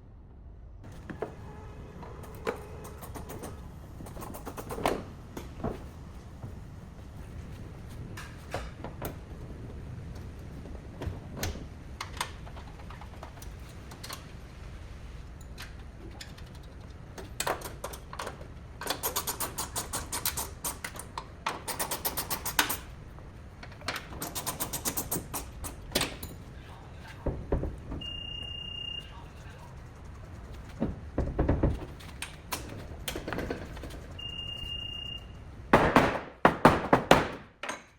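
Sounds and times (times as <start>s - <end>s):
rapid ratchet-like clicking: 18.8s - 22.9s, 24.2s - 25.9s.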